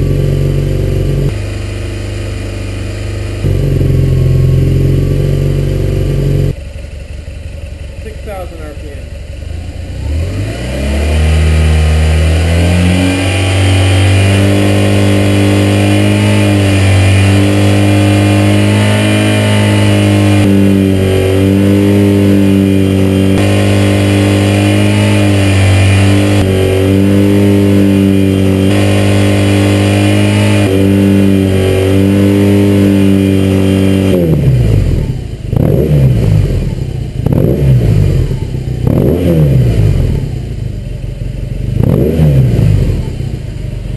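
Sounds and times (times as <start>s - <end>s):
motorcycle engine revving: 0.0s - 43.9s
motorcycle throttle blips: 0.0s - 43.9s.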